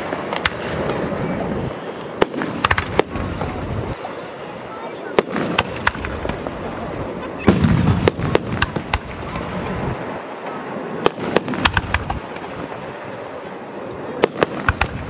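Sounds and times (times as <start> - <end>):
fireworks booming and cracking: 0.0 - 15.0.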